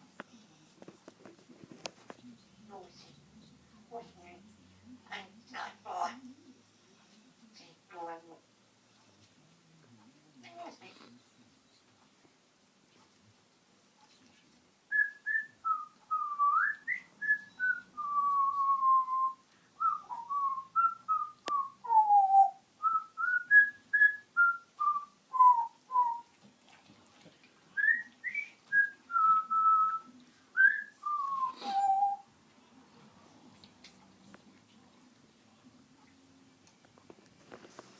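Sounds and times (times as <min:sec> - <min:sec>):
parrot whistling a tune: 0:14.9 - 0:26.3, 0:27.8 - 0:32.2.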